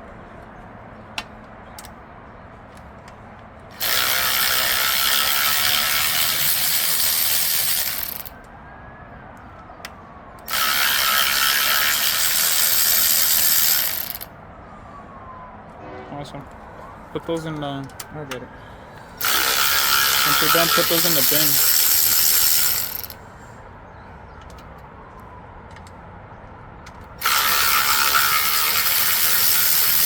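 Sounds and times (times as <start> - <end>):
power ratchet spinning bolts: 3.7 - 8.3, 10.5 - 14.3, 19.2 - 23.2, 27.2 - 30.0.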